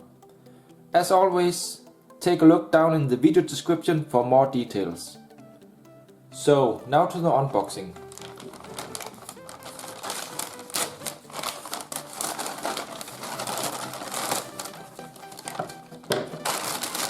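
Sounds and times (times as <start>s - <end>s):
packing material crinkling: 7.8s - 17.0s
crackles and clicks: 8.0s - 17.0s.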